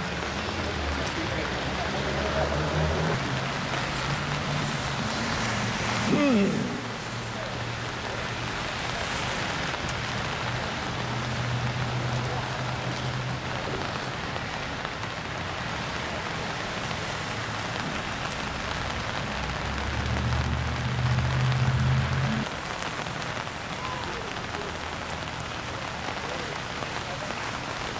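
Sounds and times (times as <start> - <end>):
steady rain falling: 0.0 - 27.9.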